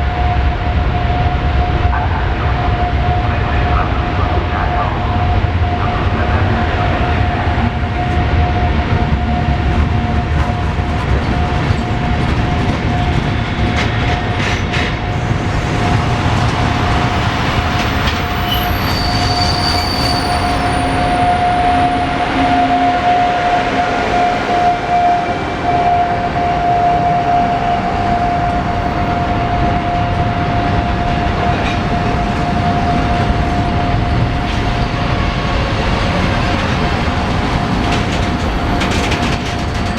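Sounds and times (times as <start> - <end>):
rumble of train wagons: 0.0 - 39.9
train wheel squeal: 9.2 - 29.0.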